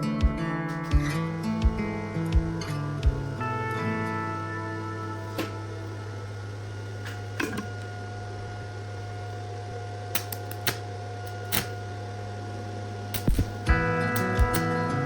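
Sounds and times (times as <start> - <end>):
machine hum: 0.0 - 15.0
sharp clicks and knocks: 13.2 - 14.7.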